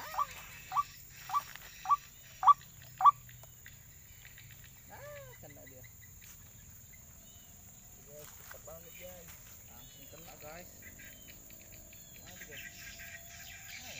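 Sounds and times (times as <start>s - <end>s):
waterhen calling harsh notes: 0.0s - 3.2s.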